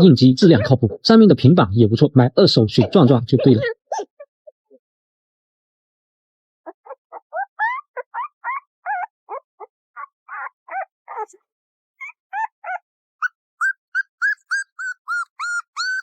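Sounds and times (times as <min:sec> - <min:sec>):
puppy whimpering and whining: 0:03.4 - 0:04.8, 0:06.7 - 0:11.4, 0:12.0 - 0:16.0.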